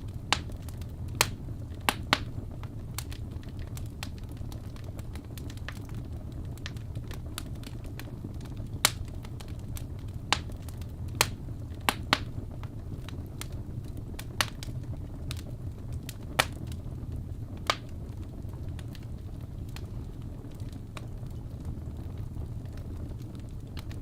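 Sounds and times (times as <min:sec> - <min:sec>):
steady low rumble: 0:00.0 - 0:24.0
wood pops in fireplace: 0:00.3 - 0:02.3, 0:10.3 - 0:14.7, 0:16.1 - 0:16.8, 0:17.6 - 0:18.0.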